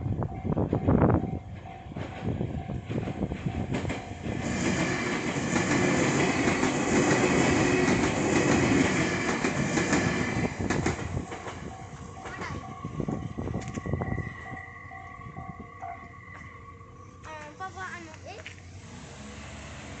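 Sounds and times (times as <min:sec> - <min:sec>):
crossing warning bell ringing: 0:00.0 - 0:18.4
wheels clattering over rail joints: 0:00.6 - 0:13.9.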